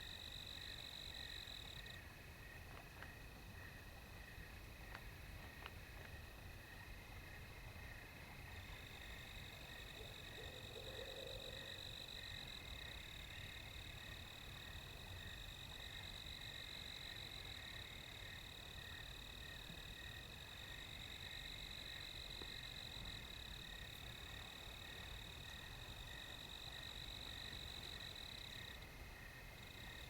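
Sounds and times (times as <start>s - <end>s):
crickets and insects trilling: 0.0s - 30.0s.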